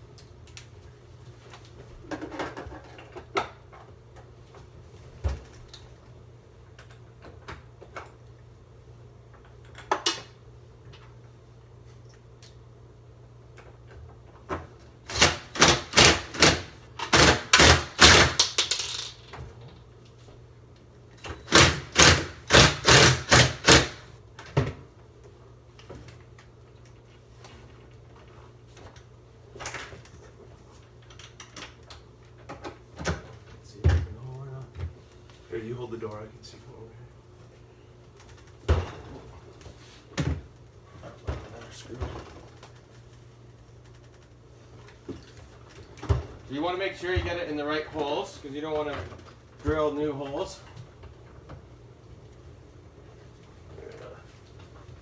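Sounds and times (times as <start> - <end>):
screwdriver rapid clicking: 15.1 - 18.6, 21.5 - 24.0.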